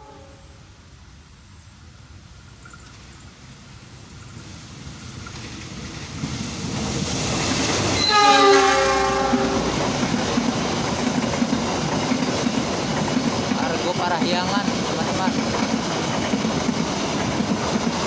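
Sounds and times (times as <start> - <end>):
train horn blast: 0.0 - 0.6, 8.0 - 9.8
diesel locomotive rumble: 3.5 - 18.0
coaches rumbling and wheel rattle: 9.0 - 18.0.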